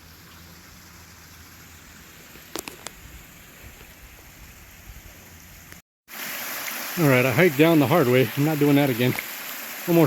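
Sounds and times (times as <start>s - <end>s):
waterfall rushing: 6.1s - 10.0s.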